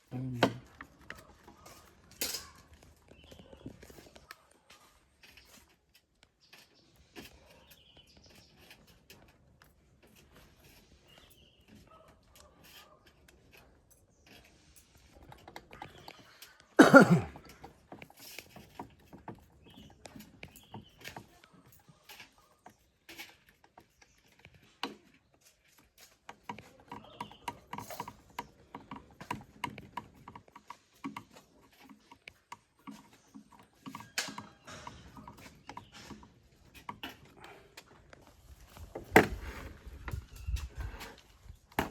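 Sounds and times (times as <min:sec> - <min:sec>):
workshop clicks and knocks: 0:00.2 - 0:04.3, 0:23.1 - 0:40.3, 0:41.1 - 0:41.9.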